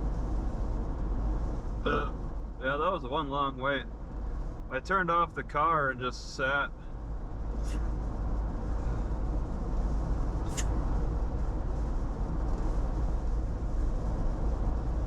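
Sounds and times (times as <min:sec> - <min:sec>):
car engine and road noise: 0:00.0 - 0:15.0
short sharp click: 0:10.5 - 0:10.7.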